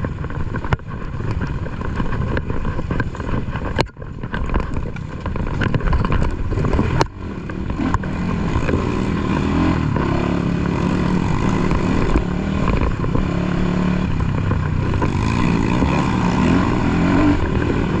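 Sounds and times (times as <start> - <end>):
dirt bike engine revving: 6.2 - 18.0.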